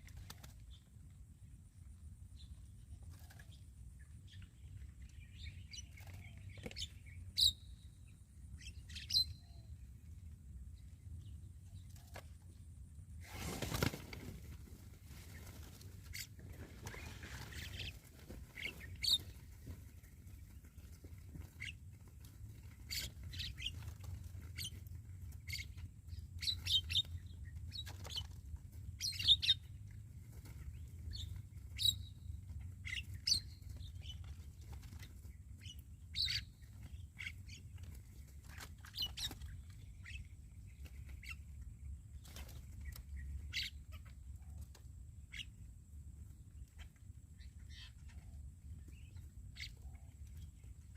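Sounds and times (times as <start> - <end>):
birds chirping and squawking: 13.4 - 45.7, 46.5 - 50.9.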